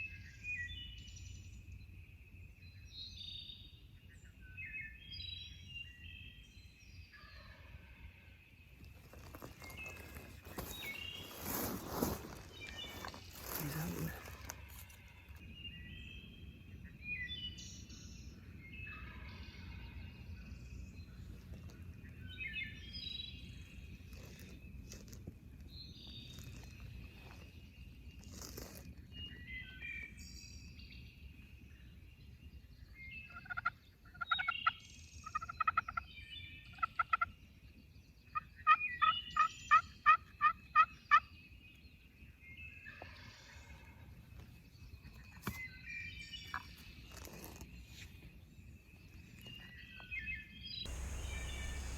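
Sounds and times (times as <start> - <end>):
songbirds chirping faintly: 0.0 - 51.9
wild turkey calling: 33.3 - 34.4, 35.2 - 36.0, 50.9 - 51.9.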